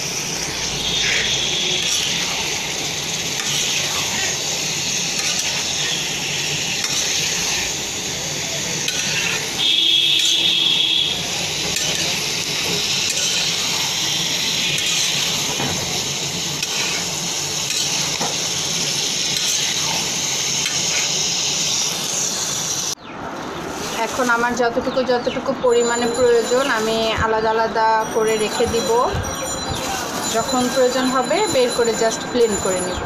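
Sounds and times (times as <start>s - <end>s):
food sizzling in oil in a pan: 0.0s - 23.0s
spatula scraping a pan: 0.9s - 7.8s, 8.8s - 9.6s, 11.7s - 15.5s, 16.5s - 18.2s, 19.3s - 21.2s
high-pitched tone: 25.7s - 33.0s.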